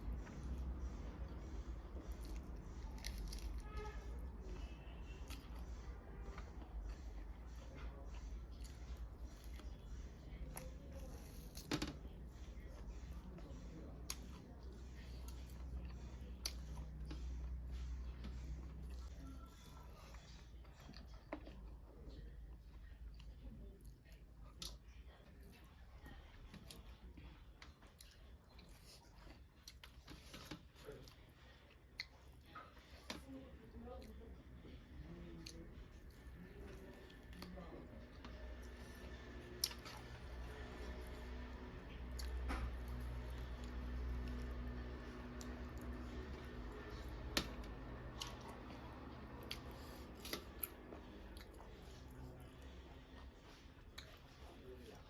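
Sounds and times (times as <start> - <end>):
quiet chewing: 0.0 - 55.0.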